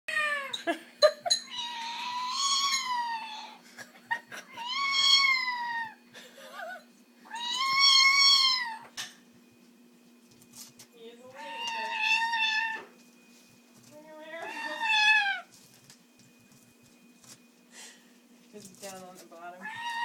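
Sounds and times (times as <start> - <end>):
parrot mimicking cat meows: 14.4 - 15.5, 19.6 - 20.0.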